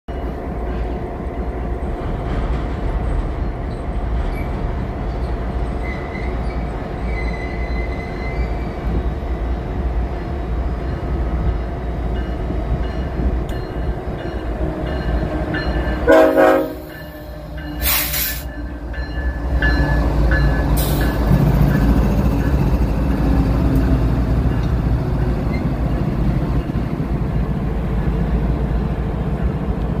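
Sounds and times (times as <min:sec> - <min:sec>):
diesel locomotive rumble: 0:00.1 - 0:30.0
locomotive horn blast: 0:14.7 - 0:18.4.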